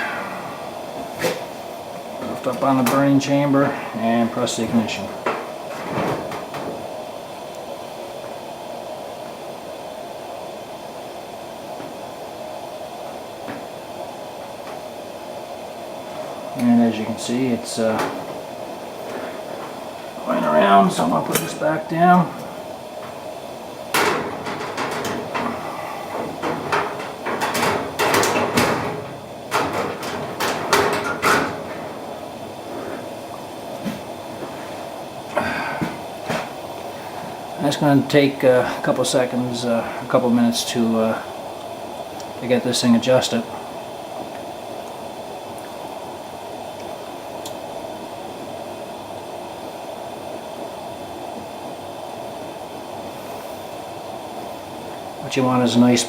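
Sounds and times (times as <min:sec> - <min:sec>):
heater burning with a rushing hiss: 0:00.0 - 0:56.0
knocks and metallic rattles: 0:23.9 - 0:32.2.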